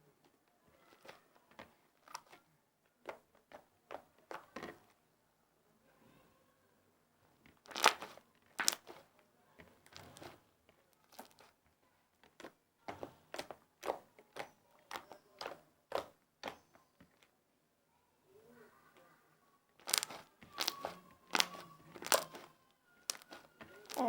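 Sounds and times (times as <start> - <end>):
slime popping and crackling: 7.6 - 9.1, 9.8 - 10.4, 11.0 - 11.5, 12.3 - 16.6, 19.8 - 24.0.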